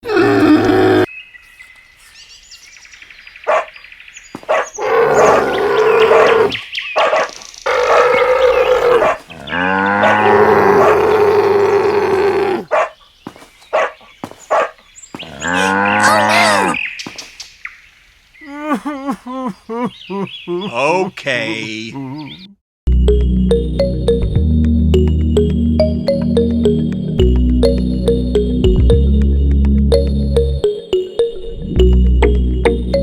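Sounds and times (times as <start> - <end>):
dog-like howls: 7.7 - 9.2, 10.0 - 12.7.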